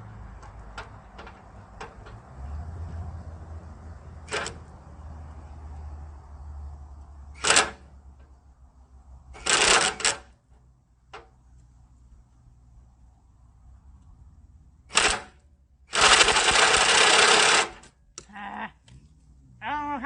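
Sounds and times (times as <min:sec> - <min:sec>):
low steady rumble: 0:18.0 - 0:20.0.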